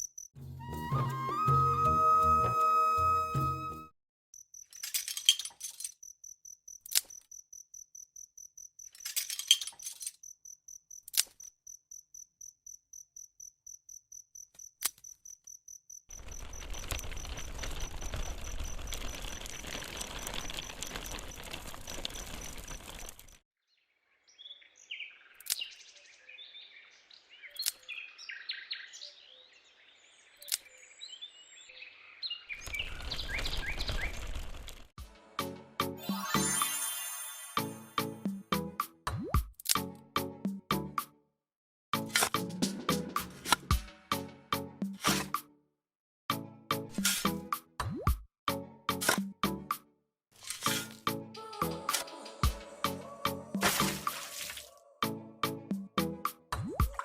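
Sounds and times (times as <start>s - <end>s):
cricket-like chirping: 0.0s - 0.4s, 4.4s - 23.4s
bird-like chirps: 24.2s - 34.3s.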